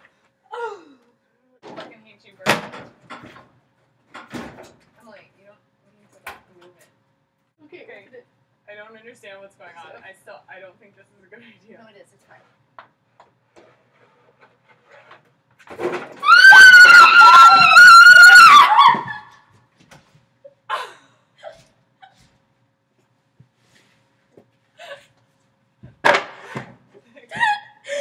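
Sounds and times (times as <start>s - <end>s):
woman screaming: 16.2s - 19.4s.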